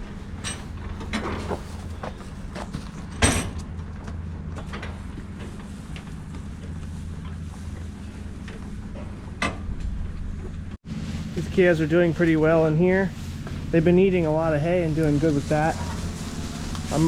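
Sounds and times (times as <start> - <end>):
knocks and clanks: 0.0 - 5.7
engine running: 0.0 - 17.0.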